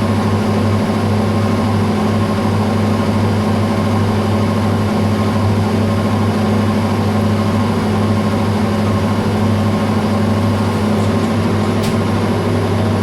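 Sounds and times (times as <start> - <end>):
metal lathe motor and gear hum: 4.1 - 13.0.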